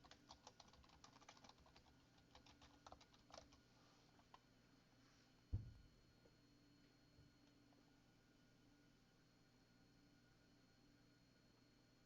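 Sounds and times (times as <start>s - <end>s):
typing on keyboard: 0.0s - 3.6s.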